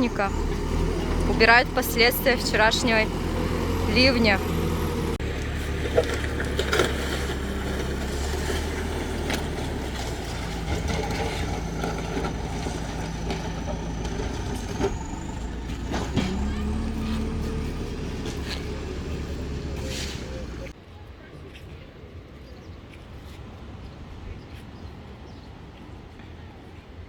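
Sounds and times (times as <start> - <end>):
heavy machinery engine running: 0.0 - 20.7.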